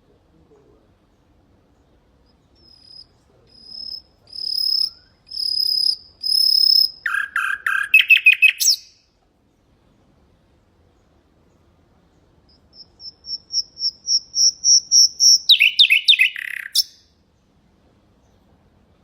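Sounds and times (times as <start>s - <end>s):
nightingale singing: 1.0s - 9.1s, 10.9s - 17.2s.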